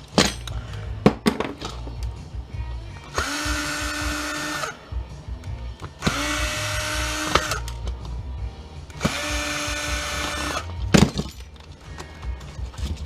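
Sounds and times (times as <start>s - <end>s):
cordless power drill whining: 3.1s - 4.8s, 6.0s - 7.8s, 9.0s - 10.7s.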